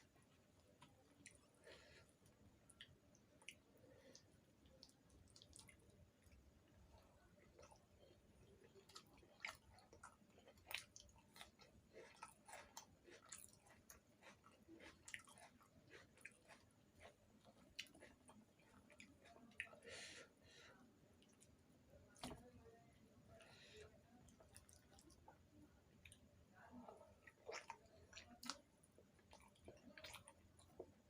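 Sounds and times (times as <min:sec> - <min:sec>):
person chewing food: 0:00.0 - 0:22.4, 0:23.3 - 0:31.0.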